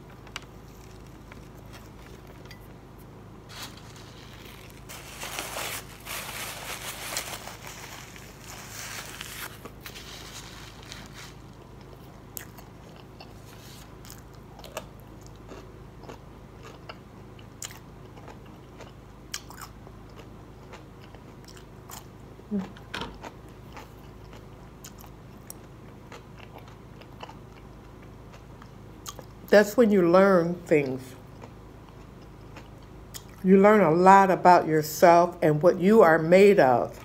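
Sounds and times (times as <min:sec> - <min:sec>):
steady low hum: 0:00.0 - 0:37.0
crisp crunches of chewing: 0:00.2 - 0:02.5, 0:03.5 - 0:29.4.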